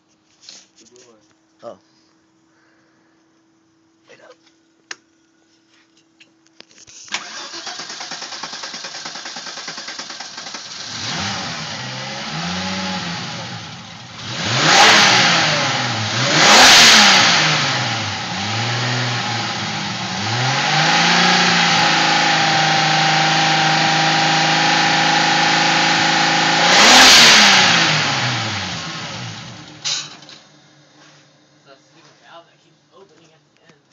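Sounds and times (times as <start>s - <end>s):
starter motor cranking: 7.1s - 11.1s
car engine revving and idling: 7.3s - 29.8s.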